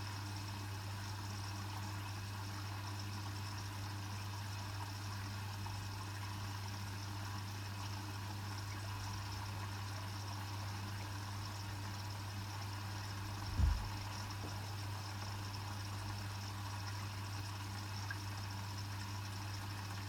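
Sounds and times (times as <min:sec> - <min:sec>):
washing machine low hum: 0:00.0 - 0:20.0
washing machine water flowing: 0:04.4 - 0:20.0.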